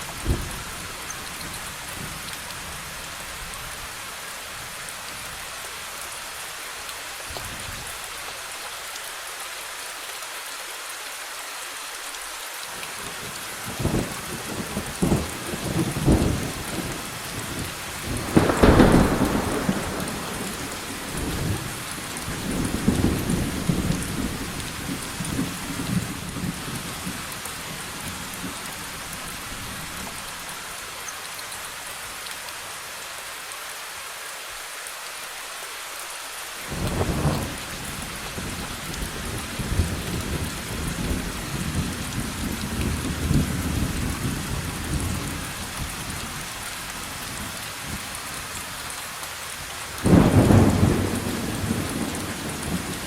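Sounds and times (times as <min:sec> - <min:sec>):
heavy rain hissing: 0:00.0 - 0:53.0
rolling thunder: 0:18.0 - 0:26.8, 0:50.0 - 0:53.0.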